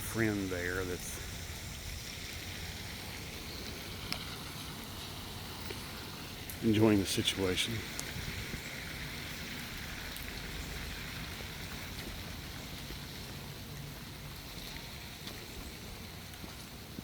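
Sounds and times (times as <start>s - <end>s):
low steady rumble: 0.0s - 17.0s
steady rain hiss: 0.0s - 17.0s.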